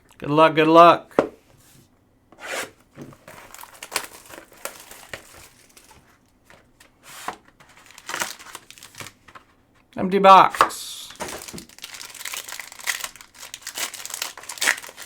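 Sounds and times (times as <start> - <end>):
plastic wrap crinkling and tearing: 3.1 - 6.2, 7.6 - 9.5, 11.1 - 15.0
packaging ripping: 3.2 - 6.0, 7.6 - 9.4, 11.1 - 15.0.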